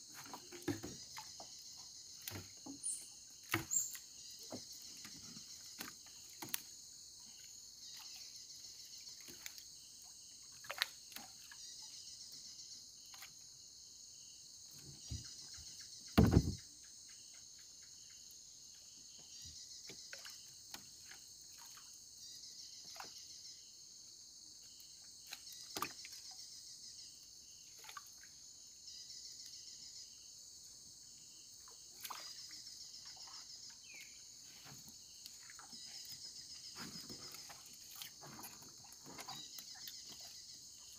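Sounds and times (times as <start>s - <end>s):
insects chirping: 0.0s - 40.9s
knocks: 16.2s - 16.6s
loud thump: 16.2s - 16.6s.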